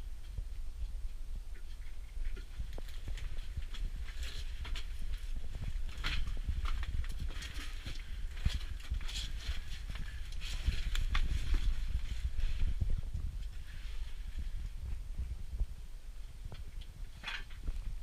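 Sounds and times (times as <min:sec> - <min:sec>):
low rumble: 0:00.0 - 0:18.0
rustling: 0:01.5 - 0:15.4
footsteps on hard ground: 0:02.3 - 0:15.7.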